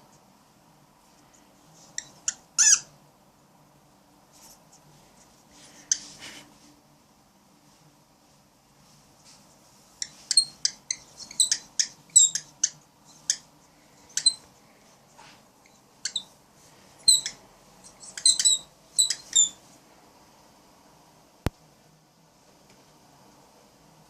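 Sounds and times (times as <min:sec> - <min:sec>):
cockatiel chirping: 0:02.0 - 0:02.9, 0:10.0 - 0:13.5, 0:16.0 - 0:16.3, 0:17.0 - 0:19.6.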